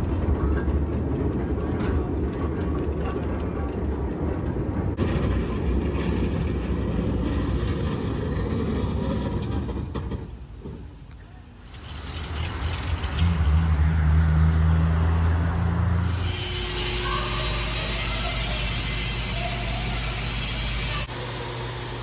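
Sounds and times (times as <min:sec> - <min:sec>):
rail clicks: 0:00.0 - 0:14.2
diesel locomotive engine rumble: 0:00.0 - 0:22.0.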